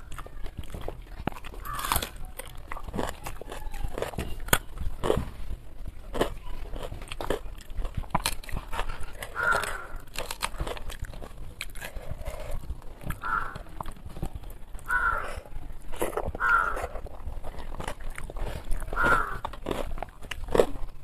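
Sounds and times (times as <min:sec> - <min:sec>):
person chewing and lip smacking: 0:00.0 - 0:21.0
animal calling harshly: 0:01.6 - 0:02.3, 0:09.0 - 0:10.1, 0:13.2 - 0:13.7, 0:14.8 - 0:15.5, 0:16.4 - 0:16.9, 0:18.9 - 0:19.5
fingers clicking food on plate: 0:06.1 - 0:11.9, 0:17.7 - 0:20.8.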